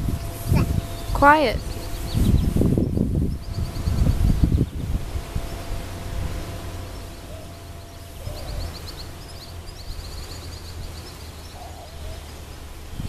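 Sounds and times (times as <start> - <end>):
bird trilling: 0.0 - 4.8, 6.7 - 12.8
low outdoor rumble: 0.0 - 13.0.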